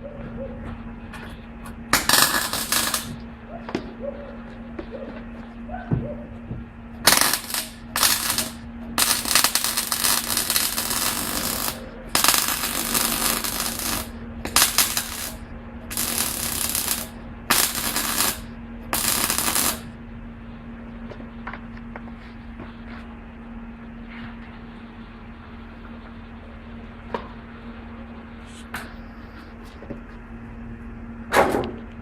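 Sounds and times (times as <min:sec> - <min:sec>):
steady low hum: 0:00.0 - 0:32.0
rattling power tool: 0:02.0 - 0:03.2, 0:07.0 - 0:19.9.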